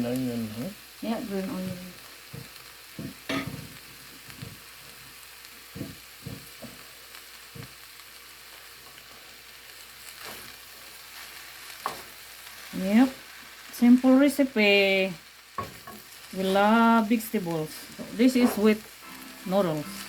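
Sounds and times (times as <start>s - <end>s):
noodles sizzling in a frying pan: 0.0s - 20.0s.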